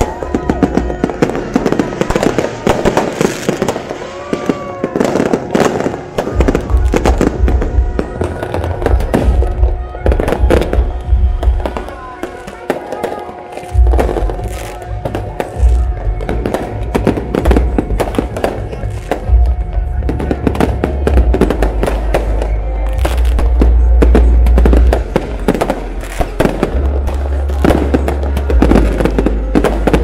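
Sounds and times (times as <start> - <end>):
music: 0.0 - 3.6, 4.2 - 30.0
fireworks bursting and crackling: 0.0 - 30.0
heavy low booms: 6.1 - 12.3, 13.7 - 30.0.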